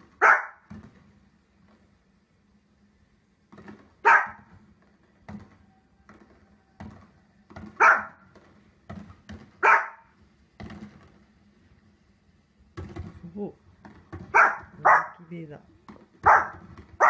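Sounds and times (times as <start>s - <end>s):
small dog barking: 0.2s - 0.6s, 4.0s - 4.5s, 7.8s - 8.2s, 9.6s - 10.1s, 14.3s - 15.3s, 16.2s - 17.0s.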